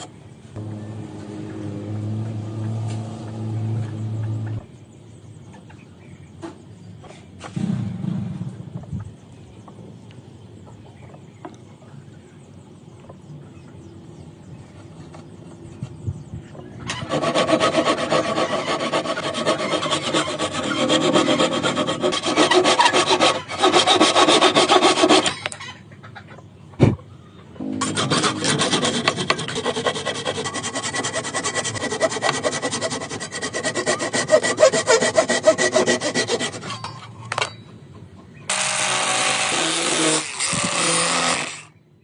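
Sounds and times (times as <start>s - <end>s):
wood being sanded: 17.0s - 25.3s, 27.6s - 36.8s.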